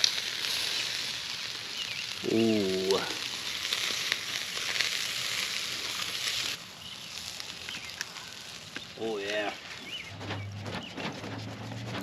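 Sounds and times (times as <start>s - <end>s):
patties sizzling on a grill: 0.0s - 10.4s.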